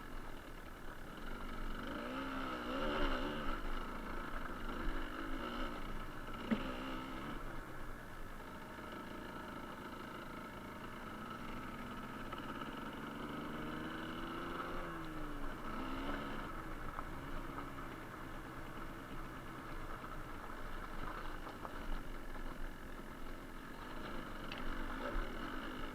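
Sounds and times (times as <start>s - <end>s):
two-stroke engine revving: 1.1s - 7.6s, 8.9s - 19.2s, 23.8s - 25.9s.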